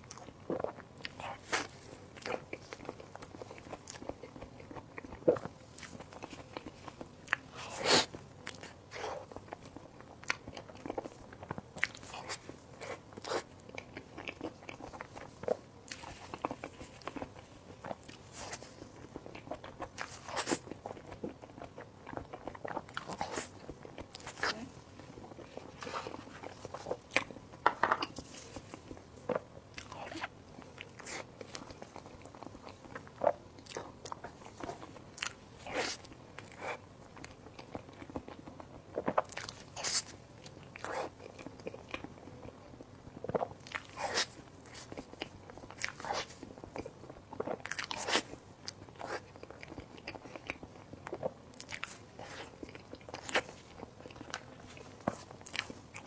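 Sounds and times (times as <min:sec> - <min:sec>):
person chewing crunchy food: 0:00.0 - 0:56.0.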